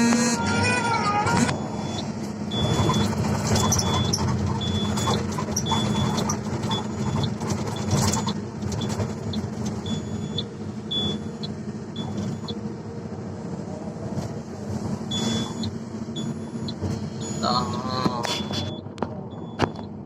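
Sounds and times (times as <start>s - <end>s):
diesel engine running: 0.0s - 20.0s
warning beeper short beeps: 15.1s - 19.8s.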